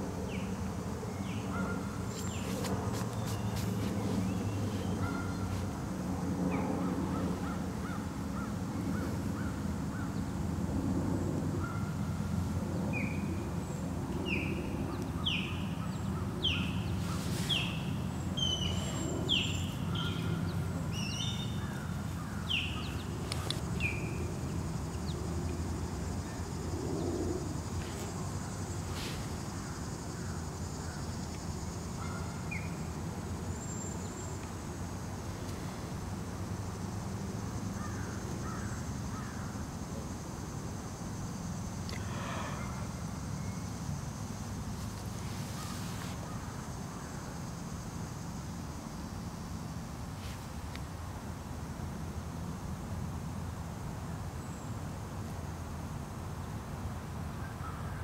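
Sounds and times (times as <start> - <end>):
low outdoor hum: 0.0 - 58.0
small birds calling: 1.1 - 5.8, 14.2 - 32.8.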